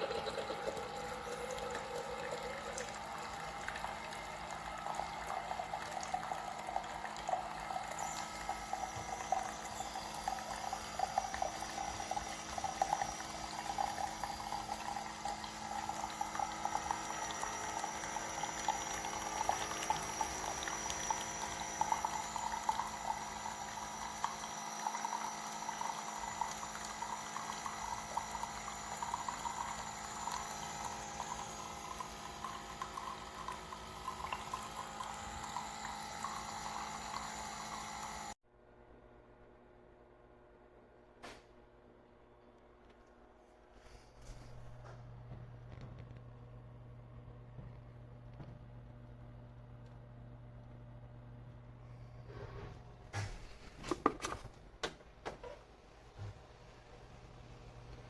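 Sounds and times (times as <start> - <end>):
coffee streaming into cup: 0.0 - 38.4
faint machine hum: 0.0 - 58.0.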